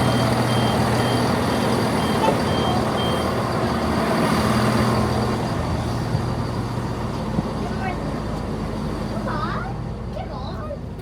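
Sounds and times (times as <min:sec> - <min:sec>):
short high door beeps: 0:00.0 - 0:03.4
train engine humming: 0:00.0 - 0:11.0.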